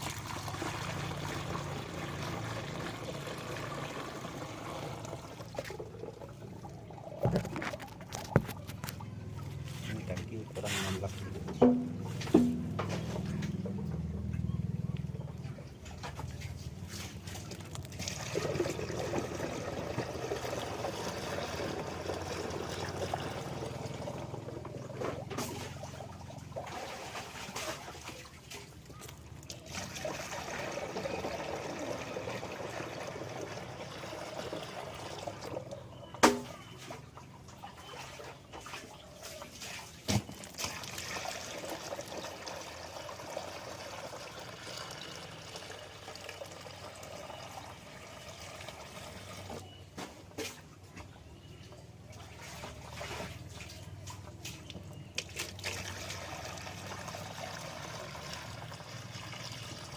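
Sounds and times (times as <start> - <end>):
water pouring into a tank: 0.0 - 9.1, 17.0 - 49.7, 51.9 - 59.9
sharp knocks: 11.5 - 13.2.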